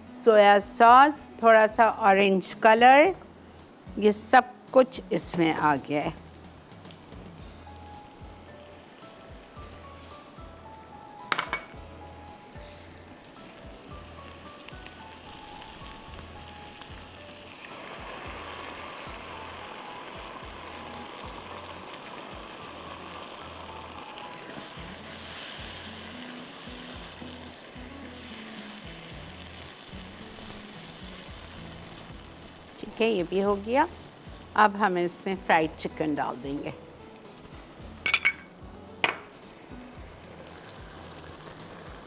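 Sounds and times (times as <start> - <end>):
stir-fry sizzling in a wok: 5.2 - 42.0
sauce pouring: 16.6 - 26.2
sharp clink: 38.1 - 38.5.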